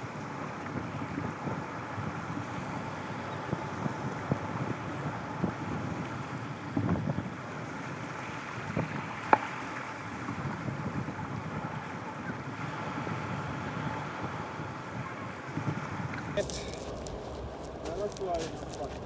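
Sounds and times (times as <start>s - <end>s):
wind buffeting microphone: 0.0s - 19.0s
outdoor rush: 14.4s - 19.0s.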